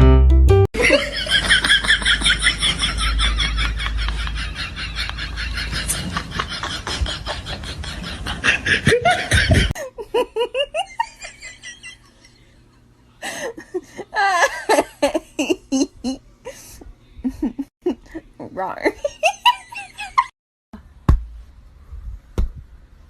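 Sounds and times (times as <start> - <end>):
people laughing: 0.8 - 12.5, 13.2 - 16.6, 17.2 - 18.2, 19.0 - 20.3.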